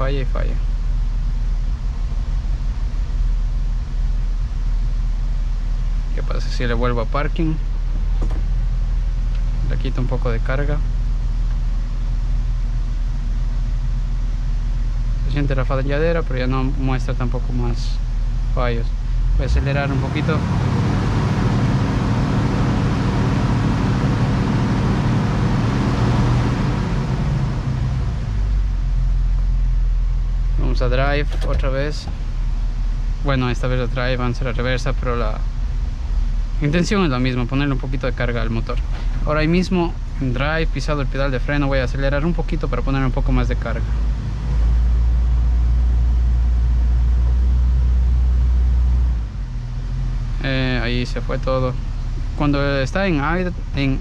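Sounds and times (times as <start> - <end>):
car engine revving: 0.0 - 54.0
steady low engine drone: 0.0 - 54.0
car engine idling roughly: 22.2 - 44.3.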